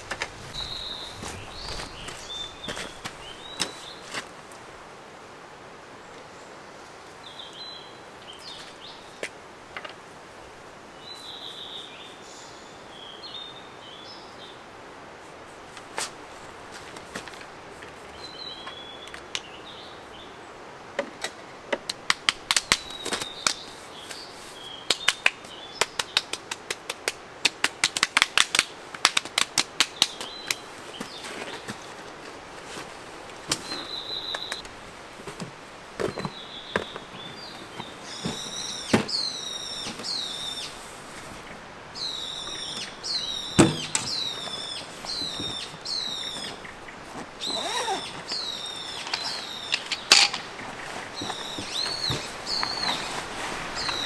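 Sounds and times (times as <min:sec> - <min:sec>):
small birds calling: 0:00.0 - 0:04.3, 0:33.3 - 0:34.7, 0:36.0 - 0:54.0.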